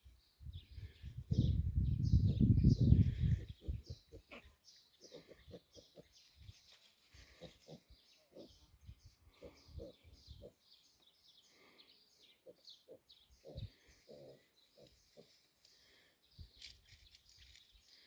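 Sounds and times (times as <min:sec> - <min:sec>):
birds chirping: 0:00.0 - 0:18.0
piglets grunting softly: 0:03.0 - 0:06.2, 0:07.1 - 0:08.7, 0:09.3 - 0:10.7, 0:12.2 - 0:16.0.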